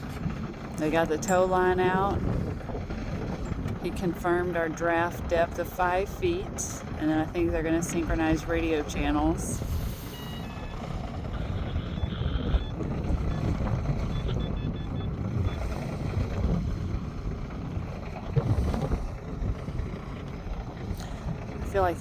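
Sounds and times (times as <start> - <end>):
boat engines rumbling: 0.0 - 22.0
wind on microphone: 0.0 - 22.0.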